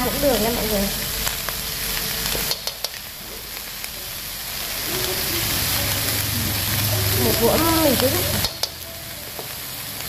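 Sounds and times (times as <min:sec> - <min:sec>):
food sizzling in oil: 0:00.0 - 0:10.0
utensils clicking on metal pan: 0:02.2 - 0:03.7, 0:04.8 - 0:10.0.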